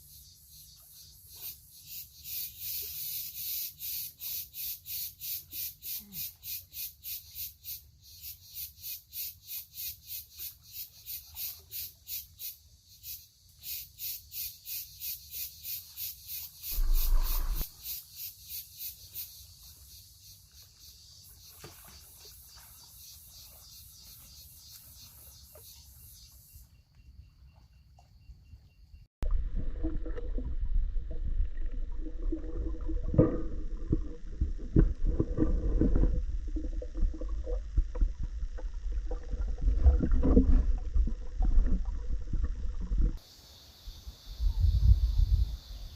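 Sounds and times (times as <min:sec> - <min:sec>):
insects buzzing in pulses: 0:11.8 - 0:26.6, 0:43.2 - 0:45.9
loud low rumble: 0:16.8 - 0:17.7.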